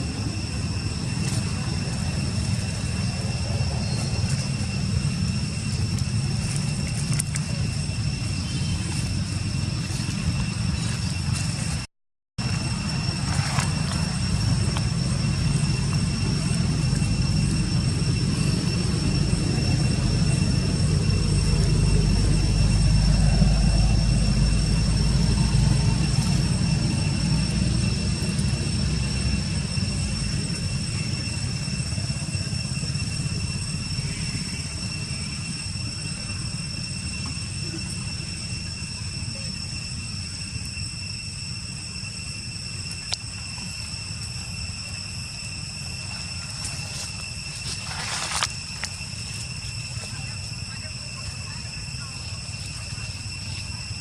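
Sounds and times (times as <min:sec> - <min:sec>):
distant engine rumble: 0:00.0 - 0:42.0
high whine: 0:00.0 - 0:54.0.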